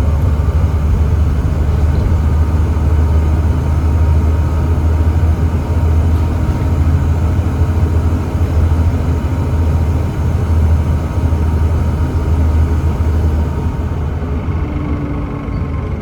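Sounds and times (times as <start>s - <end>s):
bus diesel engine droning: 0.0s - 16.0s.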